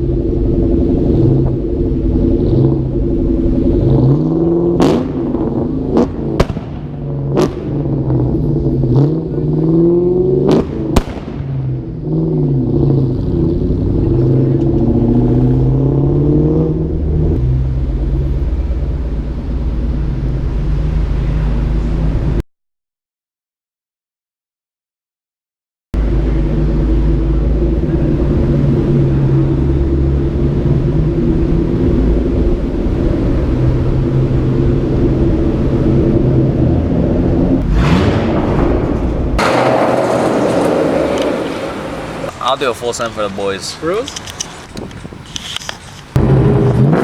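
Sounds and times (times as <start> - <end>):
car engine revving: 0.2 - 22.4, 26.0 - 43.2, 46.2 - 47.0
sharp exhaust cracks: 37.6 - 47.0.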